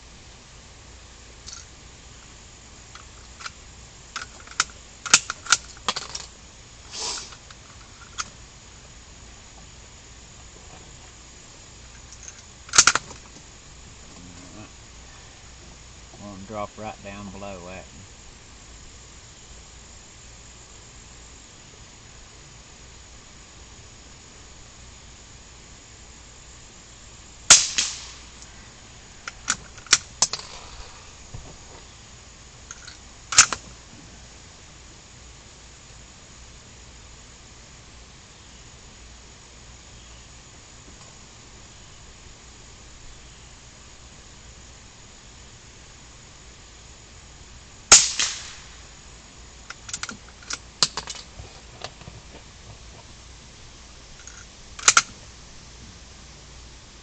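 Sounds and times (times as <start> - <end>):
gunshot: 27.5 - 28.3, 47.9 - 48.8
rifle shots with echo: 27.5 - 28.3, 47.9 - 48.8.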